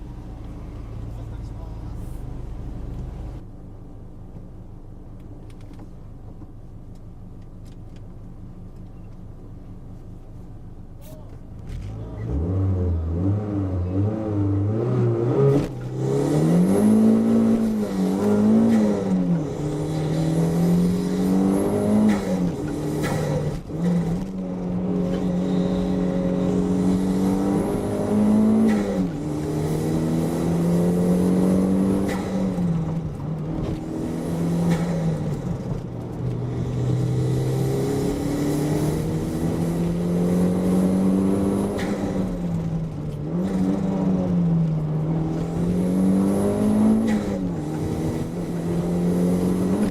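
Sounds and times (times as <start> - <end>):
car engine revving hard: 11.7 - 33.0, 36.5 - 49.9.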